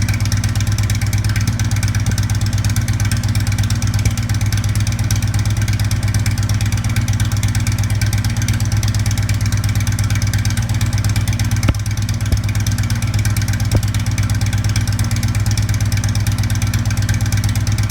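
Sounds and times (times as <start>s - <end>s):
motorcycle engine idling: 0.0s - 17.9s.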